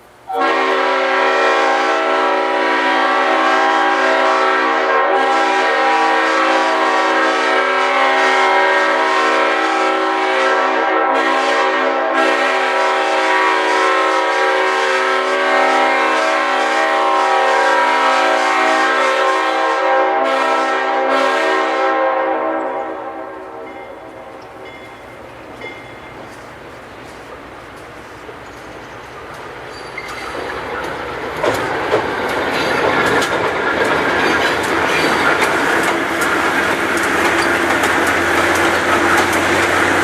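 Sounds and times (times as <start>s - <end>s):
train rumble: 0.0s - 40.0s
locomotive air horn blast: 0.3s - 24.4s.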